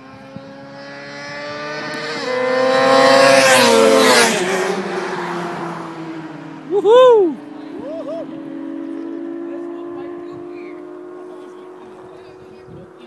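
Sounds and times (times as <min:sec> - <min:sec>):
motorcycle passing at high revs: 0:00.0 - 0:13.0.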